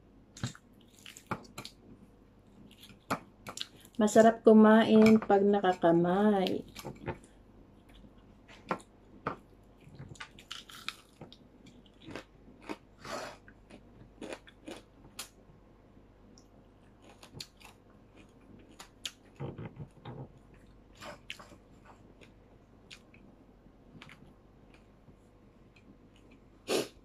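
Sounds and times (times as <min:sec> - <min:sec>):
person chewing with crunches: 0:00.4 - 0:01.8, 0:02.5 - 0:04.0, 0:06.5 - 0:08.7, 0:09.6 - 0:15.4, 0:16.4 - 0:23.3, 0:24.0 - 0:27.0.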